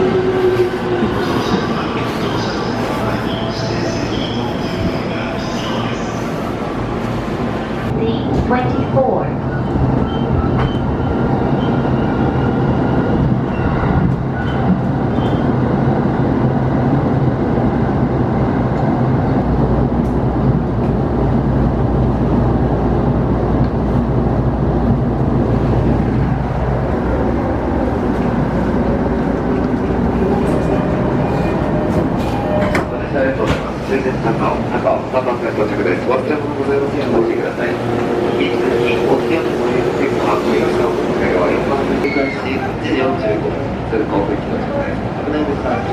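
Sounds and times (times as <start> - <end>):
train running noise: 0.0 - 45.9
train motor hum: 25.0 - 42.0.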